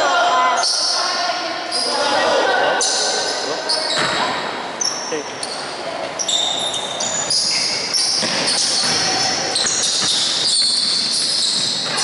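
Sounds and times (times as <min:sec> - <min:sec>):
sneakers squeaking on court: 0:02.8 - 0:12.0
basketball bouncing: 0:08.1 - 0:12.0.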